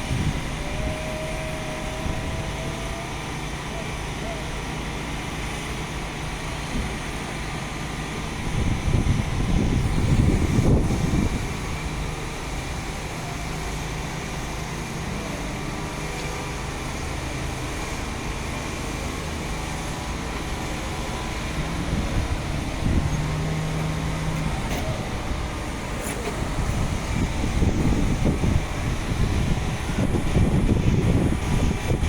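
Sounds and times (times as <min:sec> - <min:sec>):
cars passing: 0:10.0 - 0:31.2.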